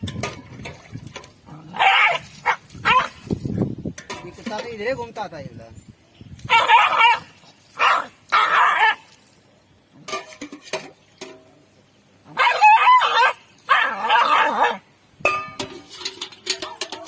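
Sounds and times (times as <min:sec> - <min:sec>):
dog crying out high-pitched: 0:01.7 - 0:03.2, 0:06.5 - 0:09.1, 0:12.3 - 0:14.8.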